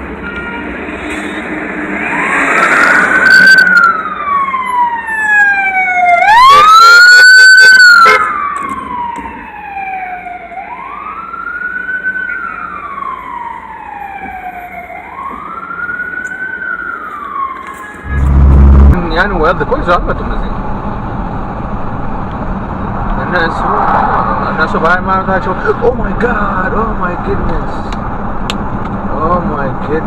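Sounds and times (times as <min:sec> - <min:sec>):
emergency vehicle siren wailing: 0:01.7 - 0:19.0.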